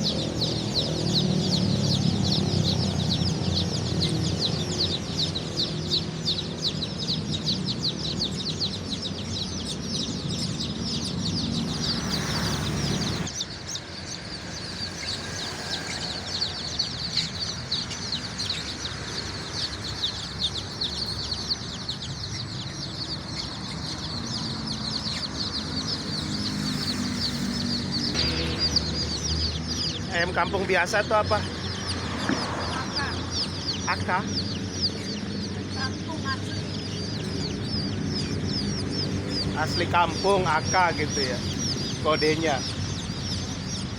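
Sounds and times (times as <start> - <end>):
chicks peeping: 0.0 - 43.9
low hum: 28.1 - 30.1.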